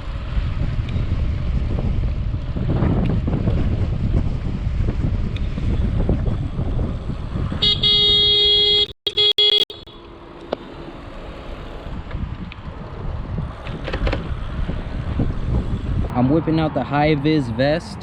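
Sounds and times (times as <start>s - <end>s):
wind buffeting microphone: 0.0s - 8.4s, 11.7s - 18.0s
road noise: 0.0s - 18.0s
horn blaring: 7.6s - 10.3s.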